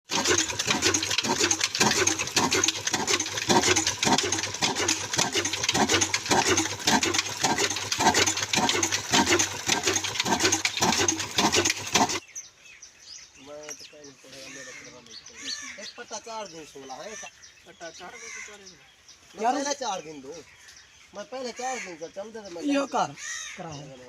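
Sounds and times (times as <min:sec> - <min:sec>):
diesel engine knocking steadily: 0:00.1 - 0:12.2.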